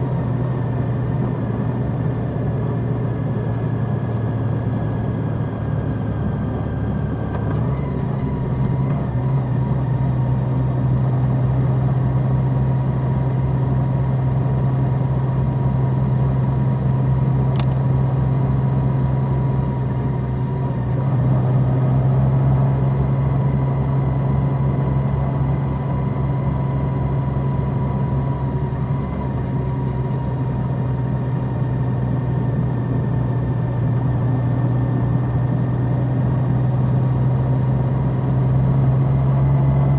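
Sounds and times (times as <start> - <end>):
brief click: 17.5 - 17.8.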